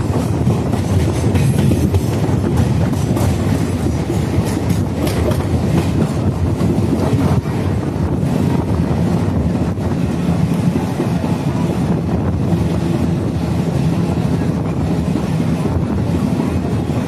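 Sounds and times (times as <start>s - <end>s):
train wheels rumbling on rails: 0.0s - 17.0s
wind buffeting microphone: 0.0s - 17.0s.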